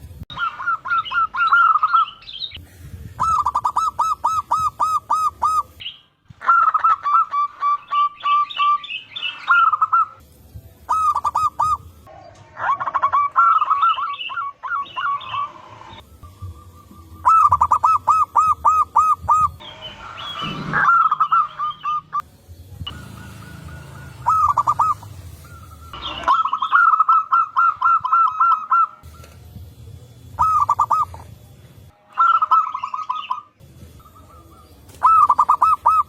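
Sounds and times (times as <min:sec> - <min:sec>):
small birds chirping: 0:00.3 - 0:10.2, 0:10.8 - 0:31.3
doves cooing: 0:03.2 - 0:05.8, 0:10.9 - 0:22.2, 0:22.9 - 0:29.4, 0:30.4 - 0:31.3, 0:34.0 - 0:36.0.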